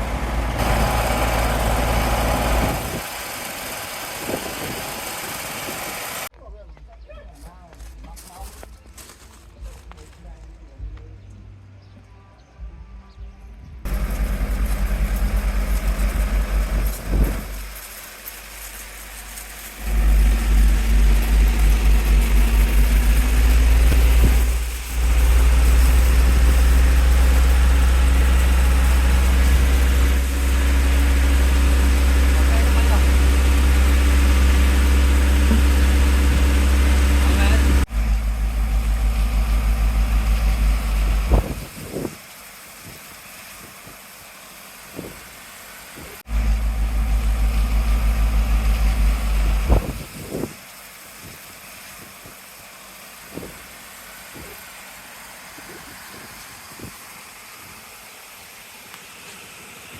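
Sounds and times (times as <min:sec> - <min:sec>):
truck engine rumbling: 0:00.0 - 0:06.7, 0:13.8 - 0:59.9
steady hiss: 0:13.9 - 0:35.4, 0:40.3 - 0:46.2, 0:47.2 - 0:59.9.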